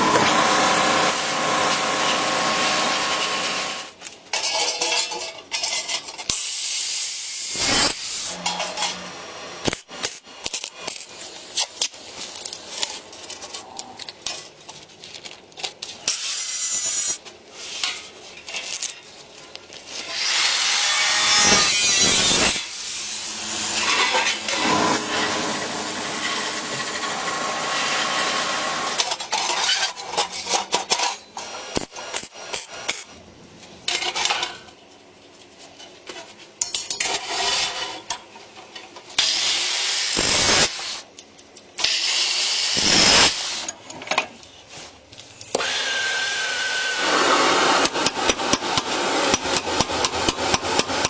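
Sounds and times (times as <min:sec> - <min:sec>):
tools scraping and rasping: 0:19.8 - 0:33.2, 0:41.8 - 0:43.8.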